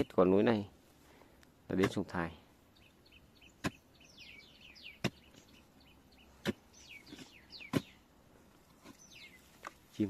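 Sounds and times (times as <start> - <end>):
small birds chirping: 0.0 - 10.0
hoe chopping into ground: 3.6 - 3.8, 5.0 - 5.4, 6.4 - 8.0.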